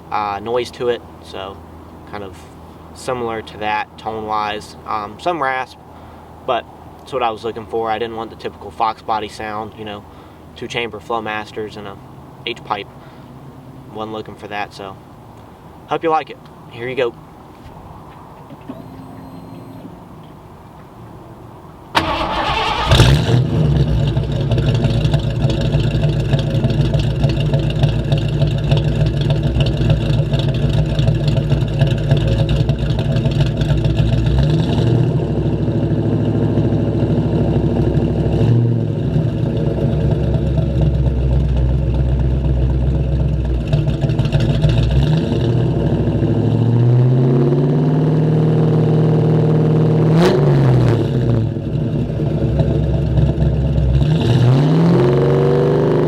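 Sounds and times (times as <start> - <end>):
loud car engine revving and idling: 22.0 - 56.0.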